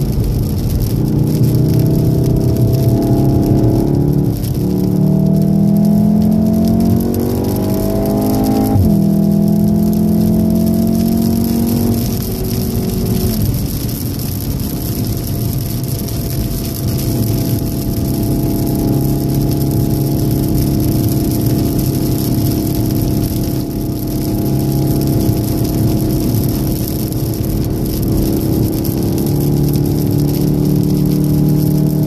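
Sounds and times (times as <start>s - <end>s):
car engine under load: 0.0s - 32.0s
tyre and road noise: 0.0s - 32.0s.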